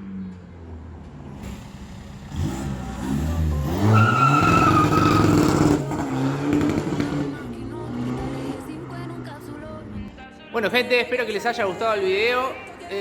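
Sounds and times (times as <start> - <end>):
car engine accelerating: 0.0 - 9.9
high turbo whine: 1.2 - 8.4.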